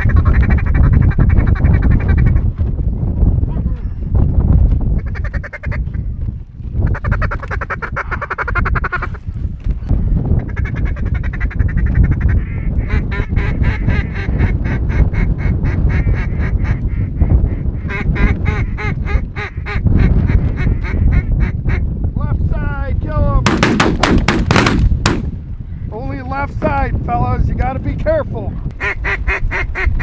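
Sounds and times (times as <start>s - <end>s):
steady low rumble: 0.0s - 29.7s
duck quacking: 28.8s - 30.0s.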